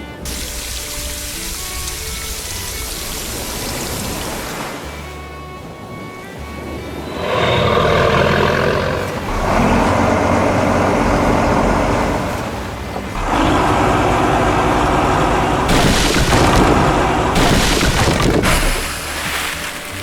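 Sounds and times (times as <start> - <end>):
heavy vehicle engine: 0.0 - 4.4, 7.0 - 20.0
hissing: 7.2 - 20.0.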